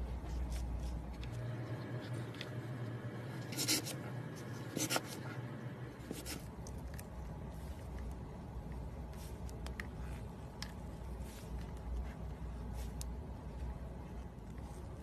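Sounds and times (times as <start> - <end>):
slime squishing: 6.0 - 15.0.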